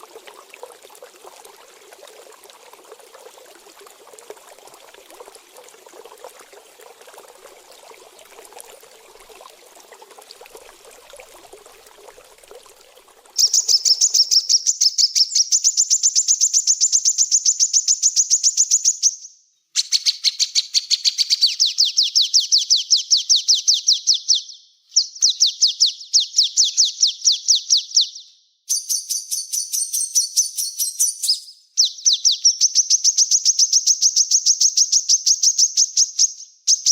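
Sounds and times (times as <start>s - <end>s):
faint trickling water: 0.0s - 14.8s.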